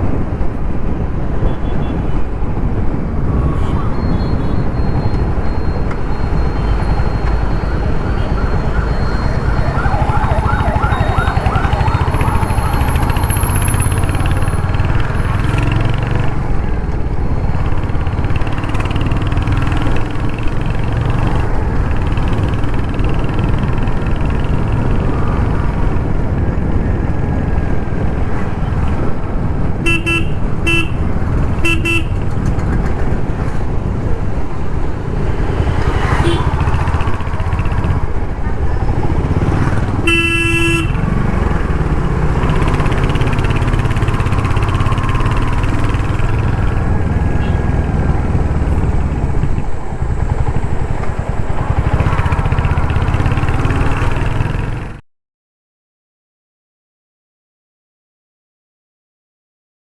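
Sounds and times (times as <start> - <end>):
city traffic: 0.0 - 55.0
wavering tone: 5.1 - 14.7
motorcycle engine running: 5.5 - 16.6, 17.4 - 25.9, 38.9 - 55.0
vehicle horn toots: 29.8 - 31.0, 31.6 - 32.3, 36.2 - 36.9, 40.0 - 41.1, 47.4 - 47.8.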